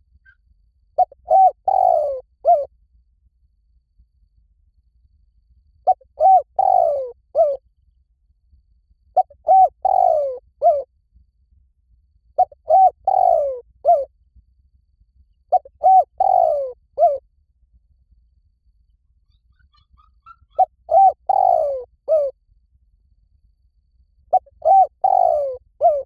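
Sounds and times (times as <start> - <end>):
dove cooing: 1.0 - 2.7, 5.9 - 7.6, 9.2 - 10.9, 12.4 - 14.1, 15.5 - 17.2, 19.5 - 22.3, 24.3 - 26.0.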